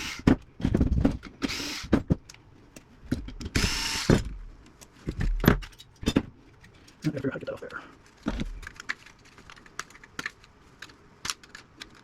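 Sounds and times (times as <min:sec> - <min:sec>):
power drill bursts: 0:01.4 - 0:01.9, 0:03.6 - 0:04.2.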